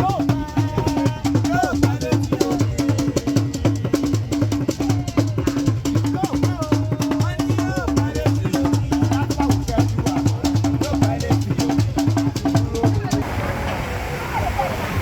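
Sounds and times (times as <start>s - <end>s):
shaker: 0.0s - 13.2s
steady drum beat: 0.0s - 13.3s
voices singing: 0.0s - 15.0s.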